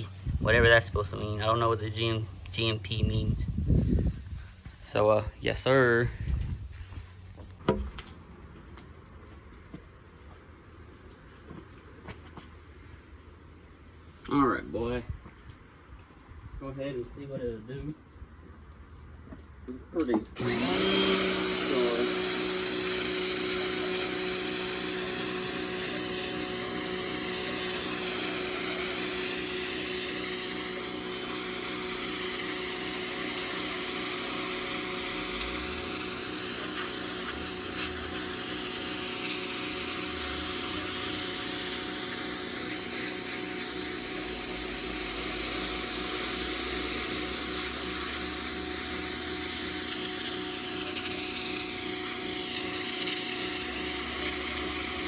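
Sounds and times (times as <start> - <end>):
pressure washer motor whine: 20.4 - 55.0
water jet hissing on brick: 20.4 - 55.0.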